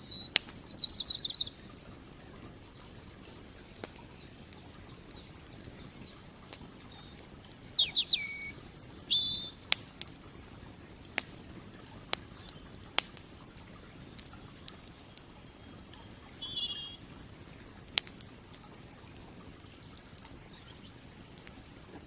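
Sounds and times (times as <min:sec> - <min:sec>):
songbird chirping: 0:00.0 - 0:09.8, 0:13.9 - 0:18.2
campfire crackling and popping: 0:00.0 - 0:22.0
creek water flowing: 0:00.0 - 0:22.0.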